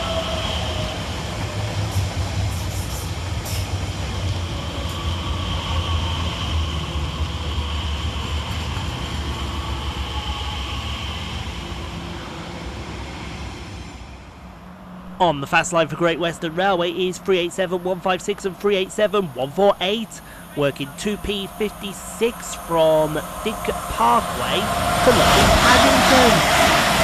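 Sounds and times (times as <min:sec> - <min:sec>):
high train whine: 0:00.0 - 0:27.0
train wheels rumbling on rail: 0:00.0 - 0:27.0.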